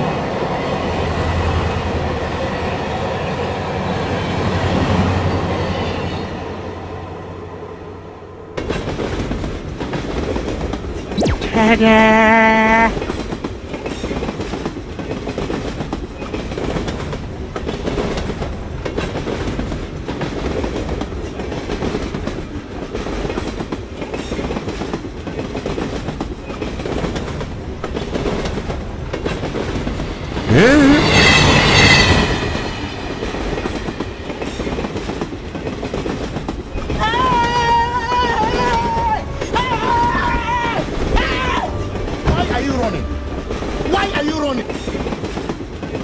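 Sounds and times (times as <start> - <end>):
train clickety-clack: 0.0 - 6.8, 8.6 - 11.2, 12.9 - 46.0
rising pitched sound: 11.2 - 12.9
train horn: 11.6 - 13.2.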